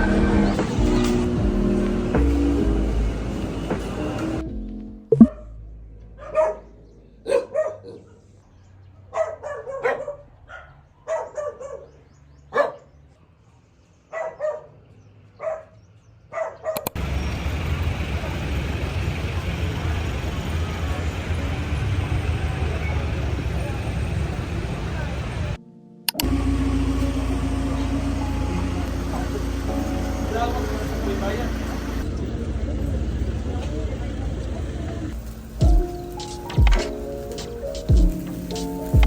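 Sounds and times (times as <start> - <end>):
dog barking: 5.2 - 5.6, 6.2 - 8.4, 9.0 - 13.0, 14.1 - 14.8, 15.4 - 16.9.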